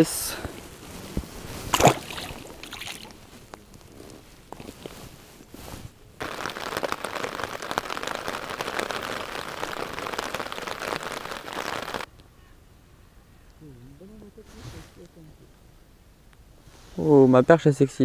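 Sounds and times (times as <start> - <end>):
rain falling on water: 6.2 - 12.1.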